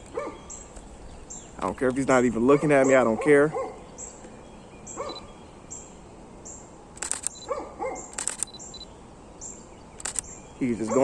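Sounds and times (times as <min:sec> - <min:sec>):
camera shutter clicks: 0:07.0 - 0:07.5, 0:08.1 - 0:08.9, 0:10.0 - 0:10.3.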